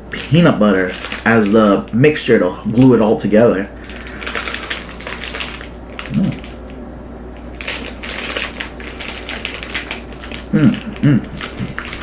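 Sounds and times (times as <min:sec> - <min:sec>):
short mouth hum: 0:06.1 - 0:06.5, 0:10.5 - 0:11.8.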